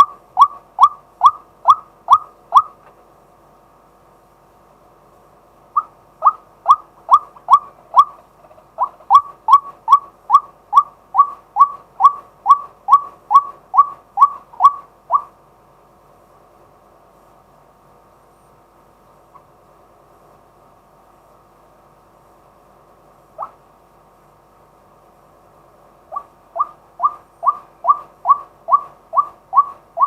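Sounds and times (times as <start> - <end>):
bird giving kwak calls: 0.0 - 2.8, 5.7 - 15.4, 23.4 - 23.6, 26.1 - 30.0.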